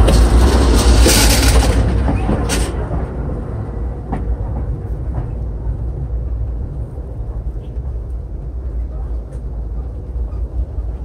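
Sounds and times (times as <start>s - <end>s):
loud rushing noise: 0.0s - 4.8s
train rumble inside coach: 0.0s - 11.0s.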